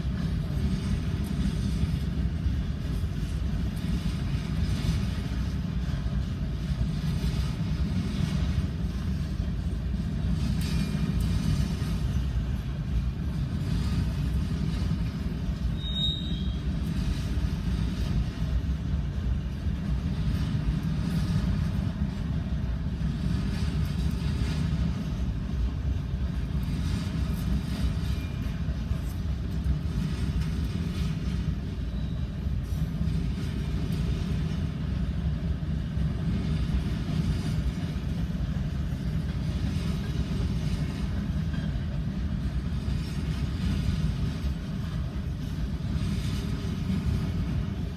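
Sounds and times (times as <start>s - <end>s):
freight train rumbling past: 0.0s - 47.9s
high squeak: 15.8s - 16.6s.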